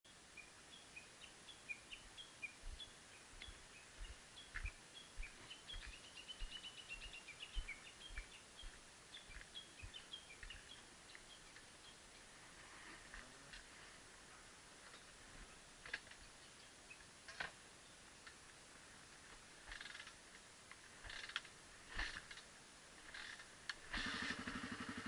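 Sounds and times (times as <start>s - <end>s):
bird chirping: 0.1s - 12.6s, 14.8s - 18.4s.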